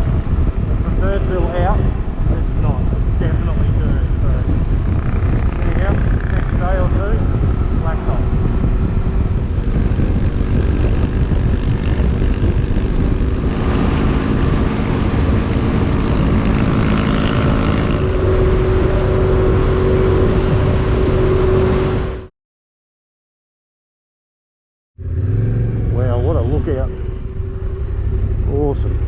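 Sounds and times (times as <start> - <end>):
steady hum: 0.0 - 22.2
motorcycle engine drone: 0.0 - 22.3, 25.0 - 29.0
wind rush on microphone: 0.0 - 22.3.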